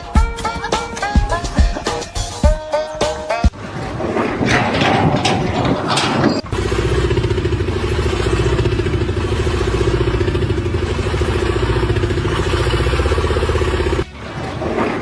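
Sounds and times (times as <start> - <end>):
engine running steadily: 4.7 - 15.0.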